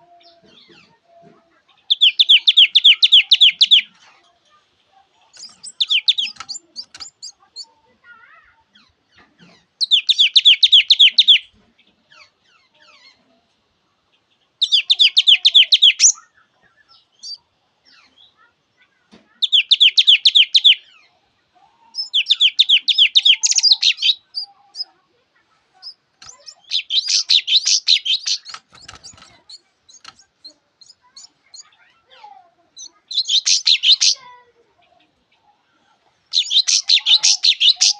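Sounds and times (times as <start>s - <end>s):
soft bird chirps: 1.6s - 13.4s, 14.0s - 21.2s, 21.8s - 37.9s
songbird trilling: 1.9s - 3.9s, 5.3s - 7.7s, 9.8s - 11.5s, 14.6s - 16.3s, 19.4s - 20.9s, 22.0s - 24.9s, 25.8s - 31.8s, 32.8s - 34.3s, 36.3s - 37.9s.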